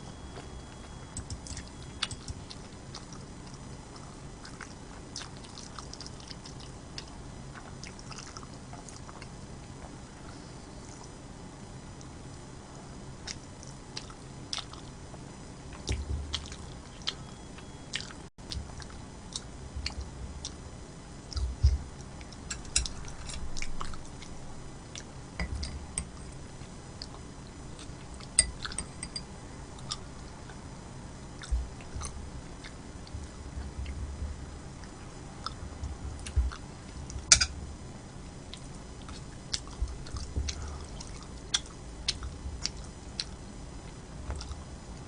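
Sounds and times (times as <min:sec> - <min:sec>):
person chewing: 0:00.1 - 0:11.2, 0:13.2 - 0:14.9, 0:15.7 - 0:20.6, 0:34.8 - 0:37.5, 0:38.5 - 0:44.6
short low thuds: 0:33.2 - 0:34.5.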